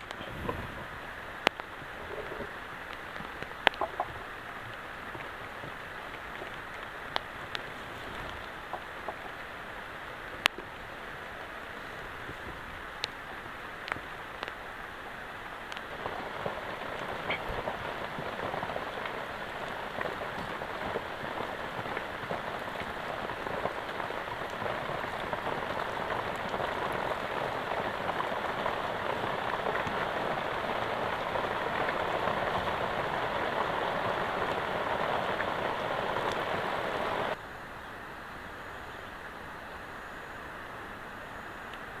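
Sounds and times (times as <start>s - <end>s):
heavy rain falling: 0.0s - 37.4s
sharp drip-like ticks: 1.4s - 37.4s.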